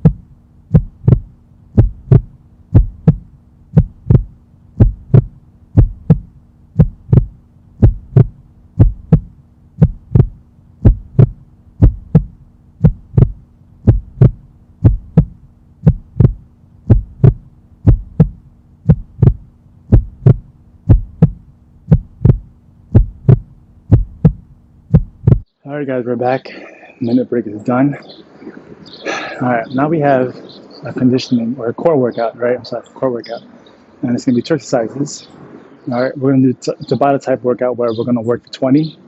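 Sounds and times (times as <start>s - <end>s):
heartbeat: 0.0s - 25.5s
low hum: 0.0s - 25.5s.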